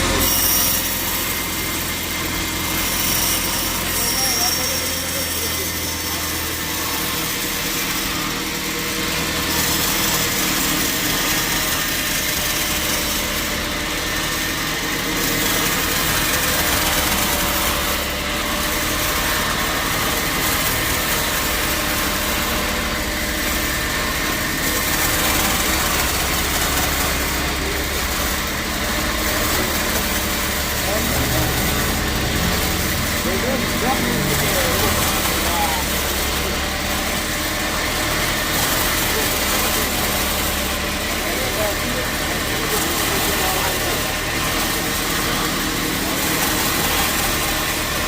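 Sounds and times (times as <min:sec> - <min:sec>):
sawmill machinery drone: 0:00.0 - 0:48.0.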